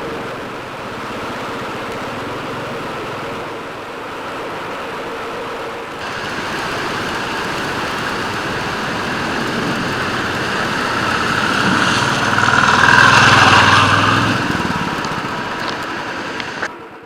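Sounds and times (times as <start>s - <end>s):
loud rushing noise: 6.0s - 16.7s
motorcycle engine running: 6.0s - 16.7s.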